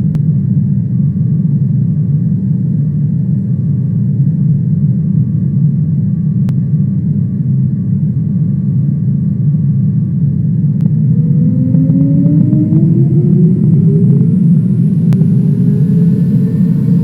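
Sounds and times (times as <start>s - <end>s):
airliner cabin rumble: 8.5s - 17.0s.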